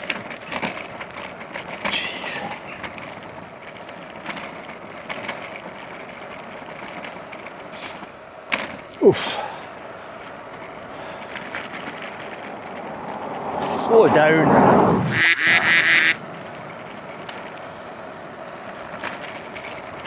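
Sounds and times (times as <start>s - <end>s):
bicycle jolting over bump: 0.0s - 14.3s, 15.0s - 20.0s
bicycle rattling over rough road: 0.0s - 20.0s
wind noise: 12.0s - 16.2s.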